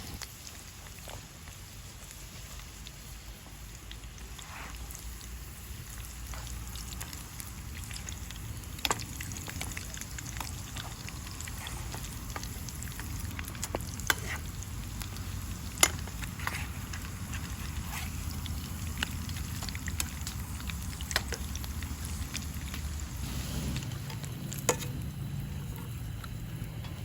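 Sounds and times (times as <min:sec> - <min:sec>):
food sizzling in hot oil: 0:00.0 - 0:26.8
oil popping: 0:02.8 - 0:27.0.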